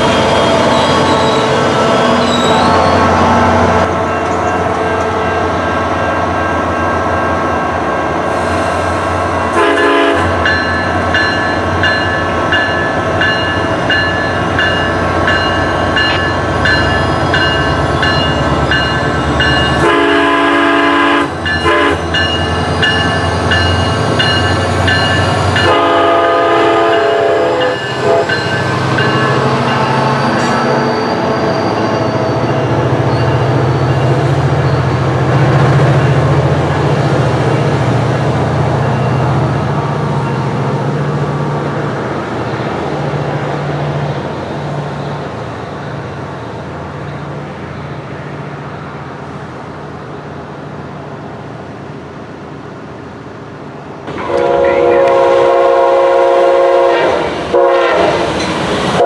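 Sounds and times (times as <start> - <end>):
train running past: 0.0 - 59.0
train horn blasts: 9.5 - 10.5, 19.8 - 22.2, 25.6 - 28.6, 54.1 - 58.3.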